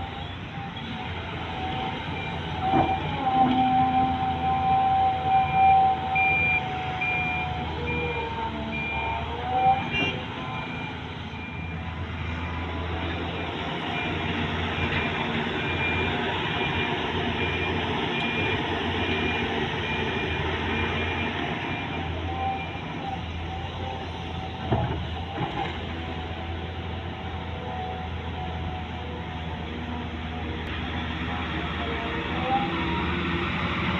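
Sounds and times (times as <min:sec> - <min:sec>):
heavy diesel machinery running: 0:00.0 - 0:33.9
reversing alarm beeping: 0:01.6 - 0:11.9, 0:13.4 - 0:23.3.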